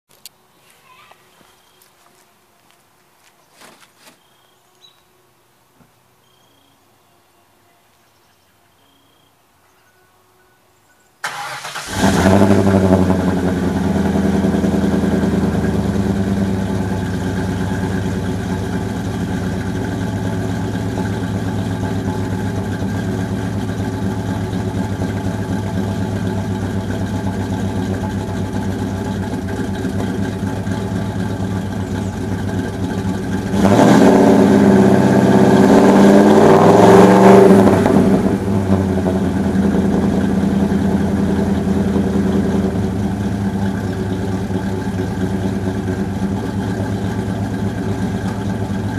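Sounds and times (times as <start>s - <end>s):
engine revving: 11.2s - 48.9s
vee eight engine lopey idle: 11.2s - 48.9s.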